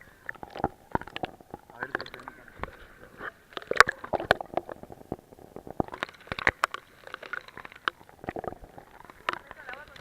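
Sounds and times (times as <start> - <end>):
water gurgling and splashing: 0.0 - 10.0
water splats and drips: 0.3 - 2.8, 5.8 - 10.0.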